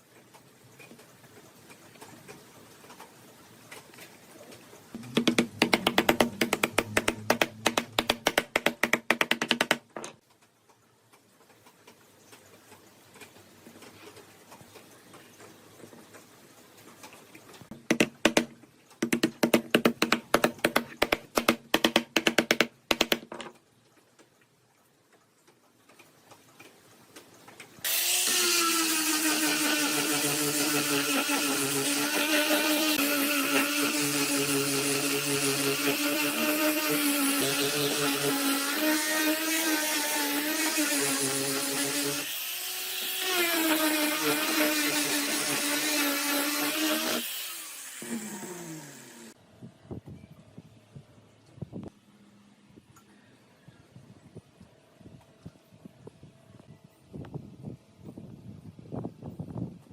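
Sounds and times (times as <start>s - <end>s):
power tool motor running: 27.9s - 49.4s.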